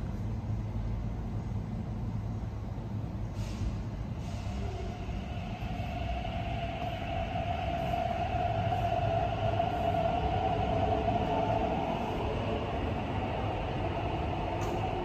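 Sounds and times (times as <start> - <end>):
electric train motor whine: 4.5 - 15.0.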